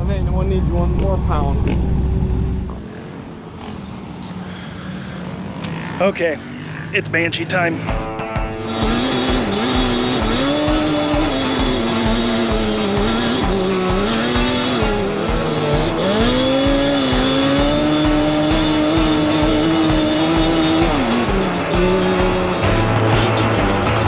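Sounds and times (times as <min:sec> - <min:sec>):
motorbike engine revving: 0:00.0 - 0:02.9, 0:08.5 - 0:24.0
background music with beat: 0:07.9 - 0:24.0.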